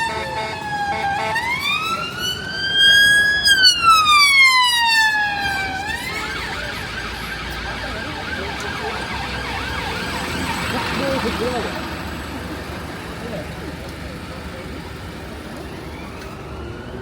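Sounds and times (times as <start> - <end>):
siren wailing and yelping: 0.0 - 11.3.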